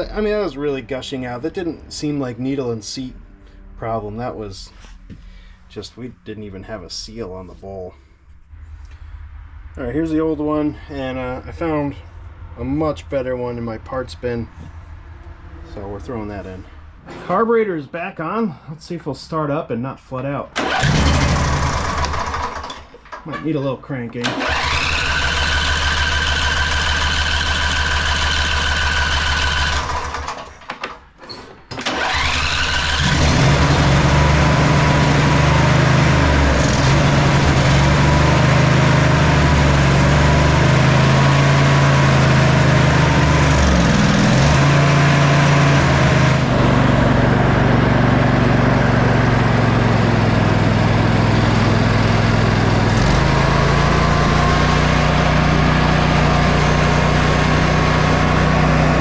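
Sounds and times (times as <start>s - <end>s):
electric starter whine: 20.6s - 23.2s, 24.2s - 59.0s
lawn tractor engine running: 20.6s - 23.2s, 24.2s - 30.7s, 31.7s - 59.0s.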